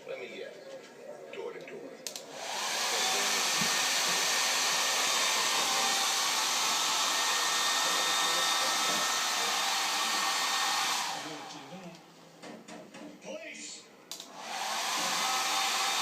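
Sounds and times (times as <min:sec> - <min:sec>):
hair dryer running: 0:02.2 - 0:11.8, 0:14.3 - 0:16.0.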